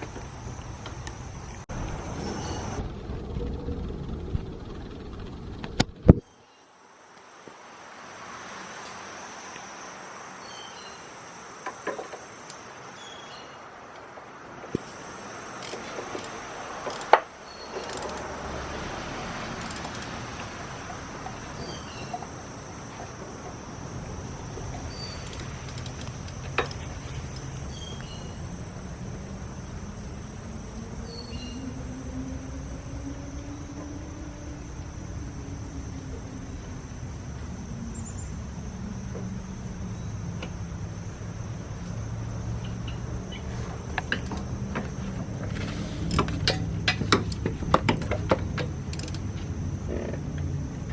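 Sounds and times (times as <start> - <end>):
steady low hum: 0.0 - 6.3, 14.2 - 50.9
faint insect chirps: 0.0 - 50.9
low tone rising and falling: 0.3 - 6.2, 28.3 - 43.3.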